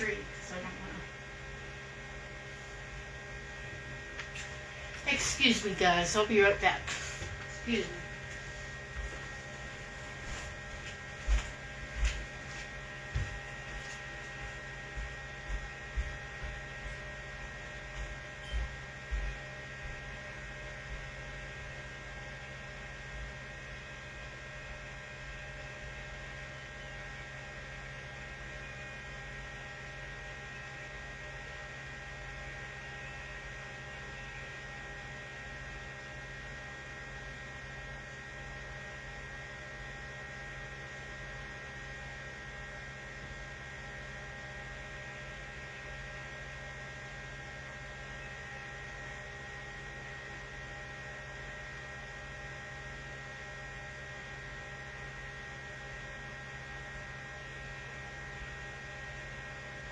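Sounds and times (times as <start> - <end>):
electrical hum: 0.0 - 59.9.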